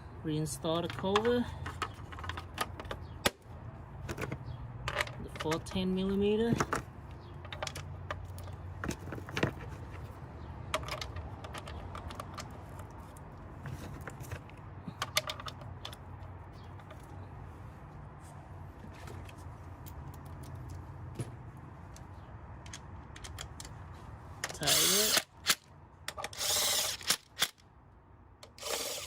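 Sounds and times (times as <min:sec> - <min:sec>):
clicks and taps of tools: 0:21.9 - 0:23.8.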